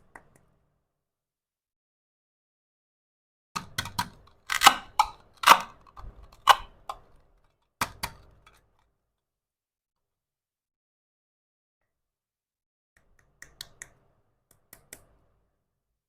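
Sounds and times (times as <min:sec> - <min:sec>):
toy kitchen pieces clicking: 0:03.6 - 0:07.1.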